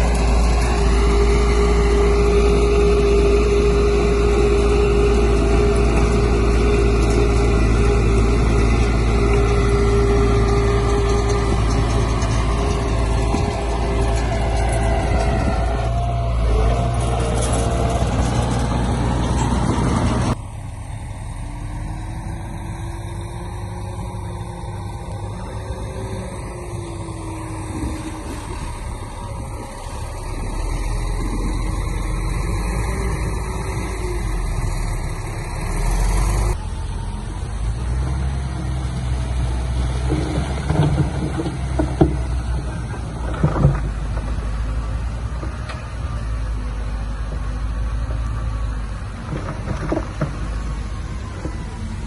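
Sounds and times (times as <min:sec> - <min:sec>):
heavy diesel machinery running: 0:00.0 - 0:52.0
sharp knocks and clatter: 0:40.0 - 0:44.6, 0:49.2 - 0:50.7.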